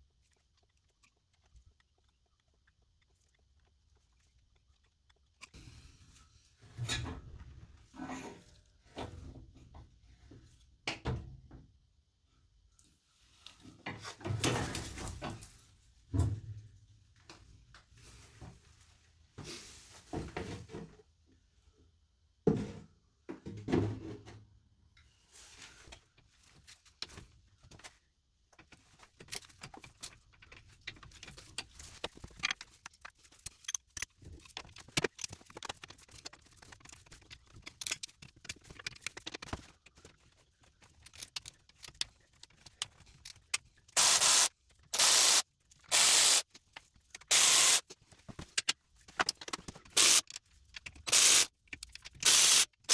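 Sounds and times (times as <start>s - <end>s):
objects being handled: 28.6s - 52.9s
short bursts of hiss: 44.0s - 46.4s, 47.3s - 47.8s, 50.0s - 50.3s, 51.1s - 51.5s, 52.2s - 52.9s.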